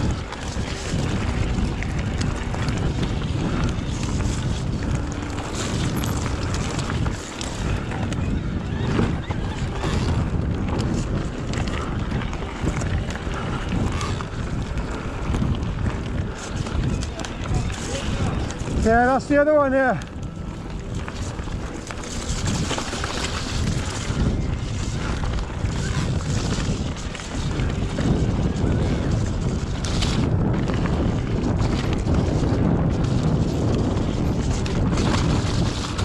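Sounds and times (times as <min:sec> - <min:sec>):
tyre noise on dirt: 0:00.0 - 0:36.0
wind buffeting microphone: 0:00.0 - 0:36.0
bike knocks and rattles: 0:00.8 - 0:08.0.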